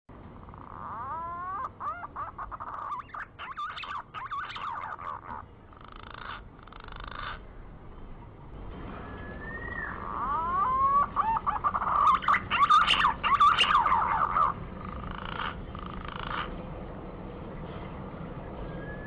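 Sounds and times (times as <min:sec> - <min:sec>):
pigeon whistled song: 0:00.9 - 0:05.4, 0:09.0 - 0:14.6, 0:18.6 - 0:19.0.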